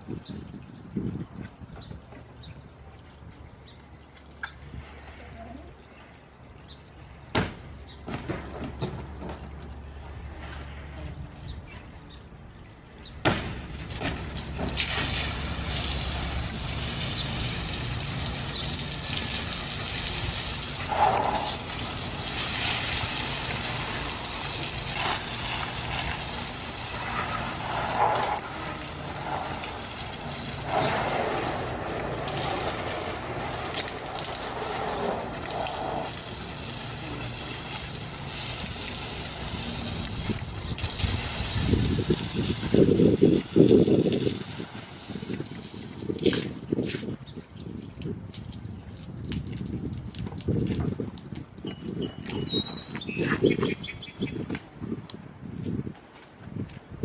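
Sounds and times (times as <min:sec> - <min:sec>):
water spraying: 0:13.2 - 0:46.9.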